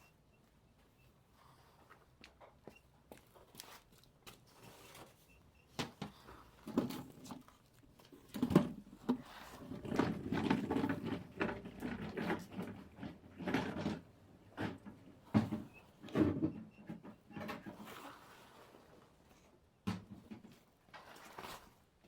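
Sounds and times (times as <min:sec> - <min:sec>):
scraping and rustling: 0:20.6 - 0:22.0.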